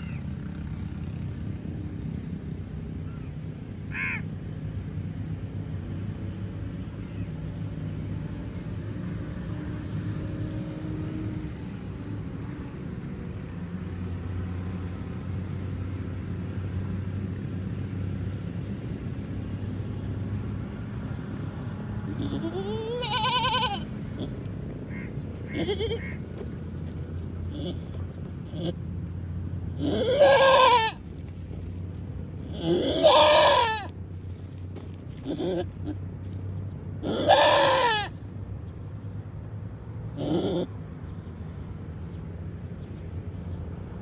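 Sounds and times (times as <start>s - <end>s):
goat bleating: 22.1s - 28.8s, 29.8s - 31.7s, 32.4s - 36.0s, 37.0s - 38.1s, 40.2s - 40.7s.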